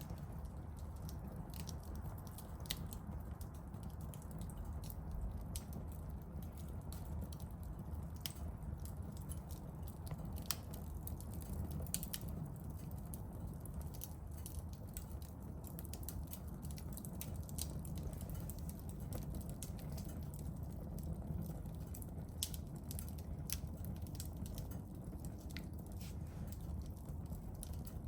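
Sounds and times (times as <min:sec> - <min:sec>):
campfire crackling: 0:00.0 - 0:28.0.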